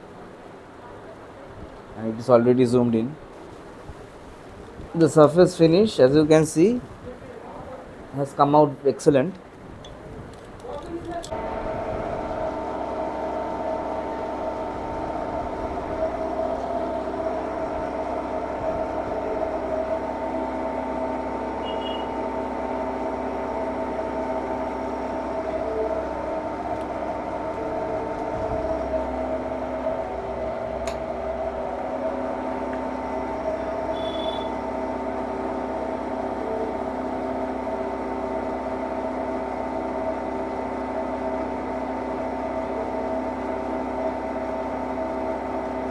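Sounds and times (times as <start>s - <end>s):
machine tool humming: 10.8s - 45.9s.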